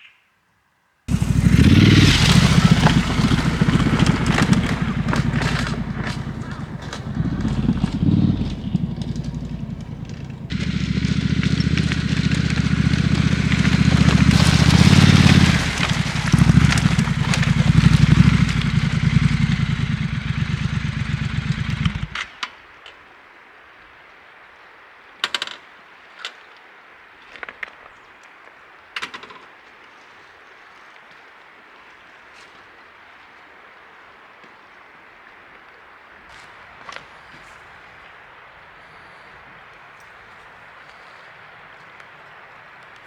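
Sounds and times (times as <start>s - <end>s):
motorcycle engine pulsing with hiss: 1.1s - 22.2s.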